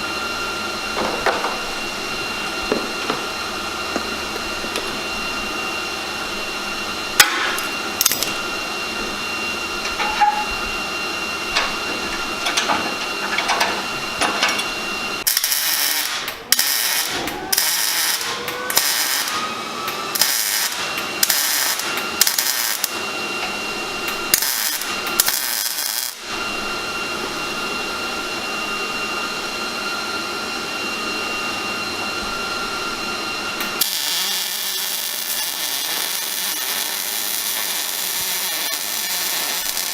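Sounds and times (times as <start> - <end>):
power tool running: 0.0 - 39.9
harsh power tool bursts: 15.2 - 23.3, 24.1 - 26.3, 33.6 - 39.9.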